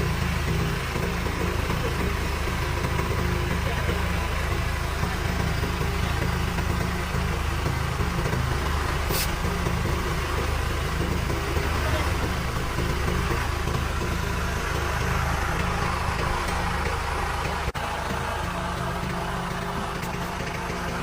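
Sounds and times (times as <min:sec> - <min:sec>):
engine idling: 0:00.0 - 0:21.0
high hiss: 0:09.1 - 0:09.4.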